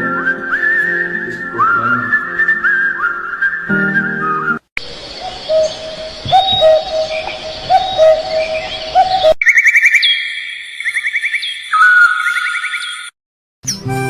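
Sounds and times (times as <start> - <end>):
low hooting bird call: 4.8 - 13.1
bird chirps: 4.8 - 13.8
bird trill with whistled notes: 5.1 - 13.9.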